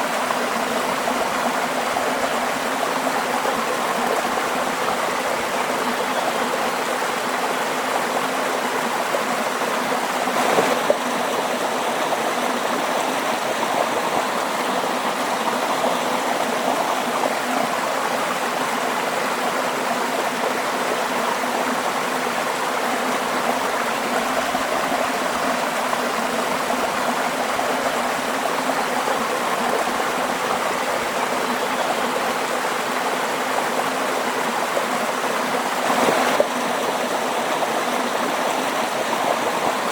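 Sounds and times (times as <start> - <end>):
waterfall rushing: 8.6 - 18.1.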